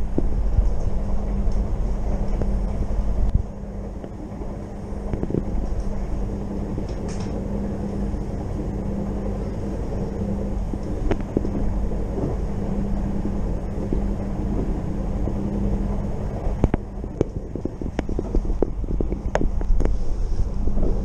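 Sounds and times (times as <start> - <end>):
constant low hum: 0.0 - 21.0
train wheels rumbling on track: 0.0 - 21.0.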